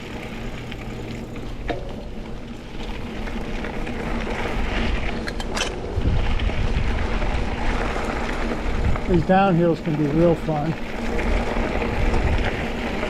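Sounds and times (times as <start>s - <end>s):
bike rattling: 0.0s - 13.0s
bike tyres on dirt trail: 0.0s - 13.0s
wind rushing over microphone: 3.5s - 13.0s.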